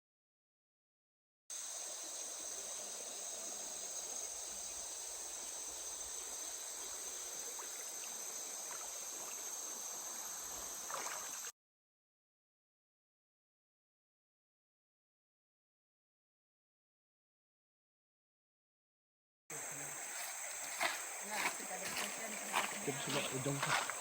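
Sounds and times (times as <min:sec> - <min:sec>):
insects chorus: 0:01.5 - 0:11.5, 0:19.5 - 0:24.0.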